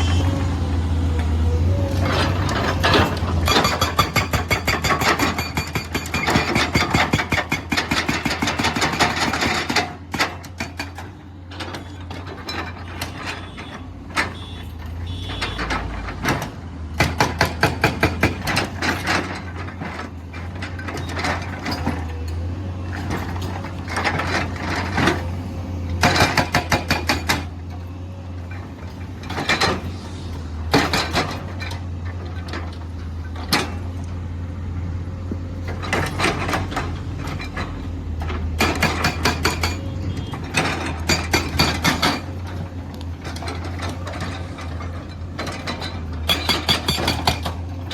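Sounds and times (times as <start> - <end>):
diesel engine hum: 0.0 - 5.1, 8.7 - 47.9
hydraulic breaker hammering: 38.6 - 39.9, 46.2 - 47.6.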